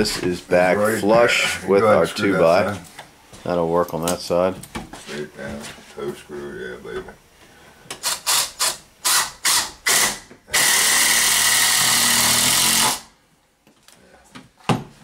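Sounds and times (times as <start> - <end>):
power drill driving screw: 8.0 - 13.1.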